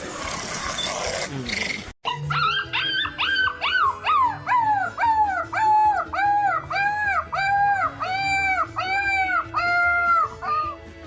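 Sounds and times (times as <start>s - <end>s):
faint music: 1.3s - 11.0s
dog yelping: 2.1s - 10.8s.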